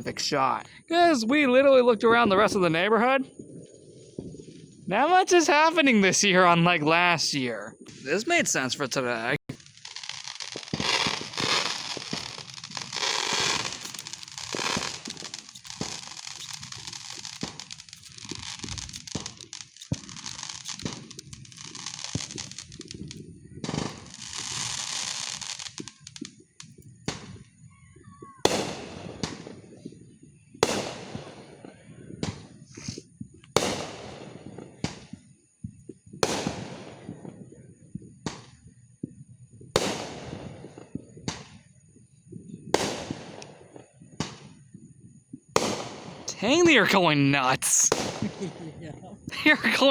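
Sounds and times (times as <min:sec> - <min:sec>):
fireworks crackling: 0:00.0 - 0:26.5, 0:45.6 - 0:48.5, 0:49.3 - 0:49.9
fireworks bangs with echo: 0:09.5 - 0:26.0, 0:28.2 - 0:32.5, 0:33.6 - 0:35.2, 0:36.2 - 0:37.5, 0:39.7 - 0:41.5, 0:42.8 - 0:43.4, 0:45.6 - 0:48.5.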